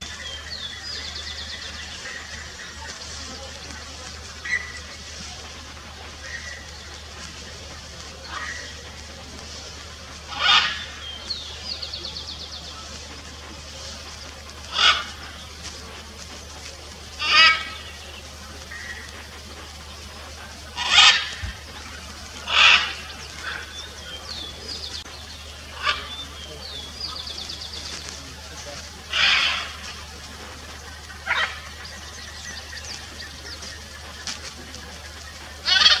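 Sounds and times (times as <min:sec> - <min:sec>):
small birds chirping: 0:00.0 - 0:36.0
macaw squawking: 0:10.3 - 0:11.5, 0:13.7 - 0:36.0.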